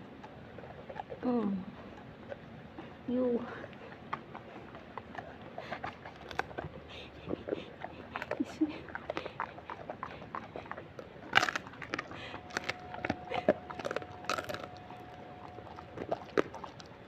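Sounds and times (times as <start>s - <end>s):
dog chewing crunchy treat: 0.0s - 17.0s.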